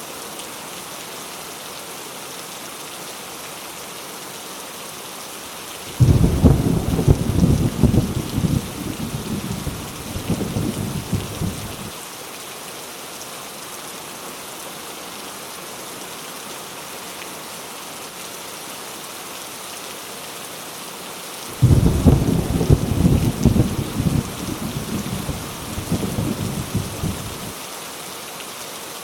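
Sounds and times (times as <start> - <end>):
heavy rain pouring: 2.5 - 14.2, 21.3 - 29.0
thunder rumbling: 5.9 - 11.9, 21.5 - 27.5.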